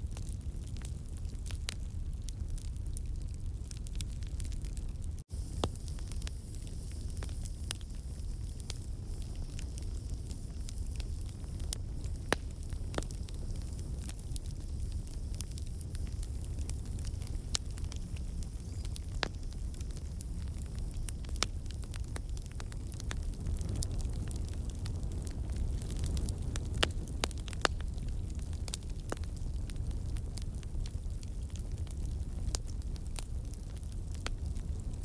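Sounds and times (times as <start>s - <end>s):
campfire crackling and popping: 0.0s - 35.0s
low rumble of flames: 0.0s - 35.0s.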